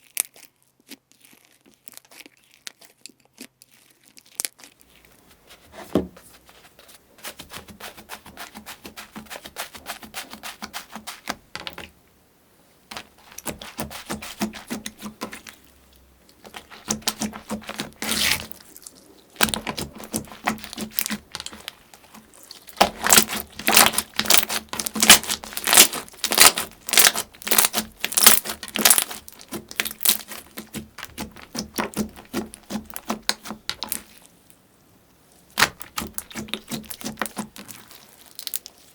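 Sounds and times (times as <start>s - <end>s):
slime crackling and popping: 12.9s - 15.7s, 16.3s - 34.3s, 35.5s - 38.9s.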